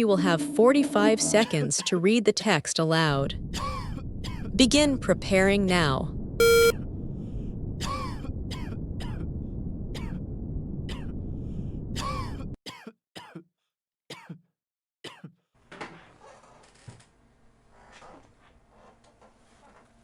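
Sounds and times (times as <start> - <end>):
person clearing throat: 3.6 - 4.5, 12.0 - 13.5, 14.1 - 15.4
short electronic beep: 6.4 - 6.8.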